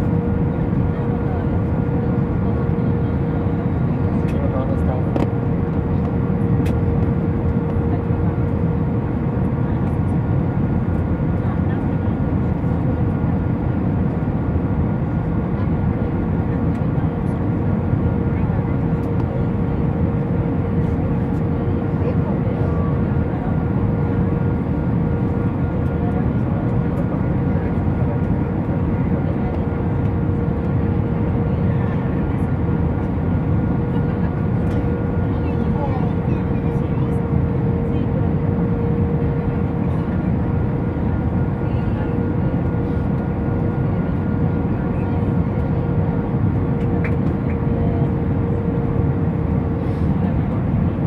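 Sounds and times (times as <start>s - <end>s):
aircraft cabin engine rush: 0.0s - 51.0s.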